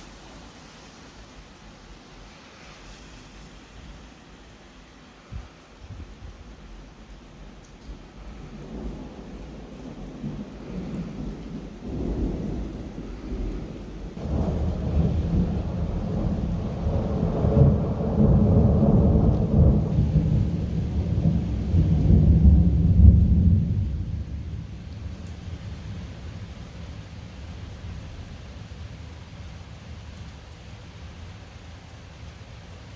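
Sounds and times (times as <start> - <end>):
steady rain: 0.0 - 32.9
thunder rolling: 8.5 - 25.3.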